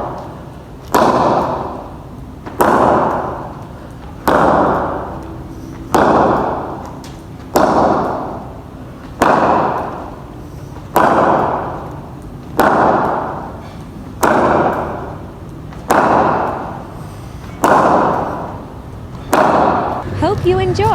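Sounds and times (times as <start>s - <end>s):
cricket bat striking ball: 11.0s - 11.8s, 12.6s - 13.5s, 15.9s - 16.7s, 17.6s - 18.5s, 19.3s - 20.0s.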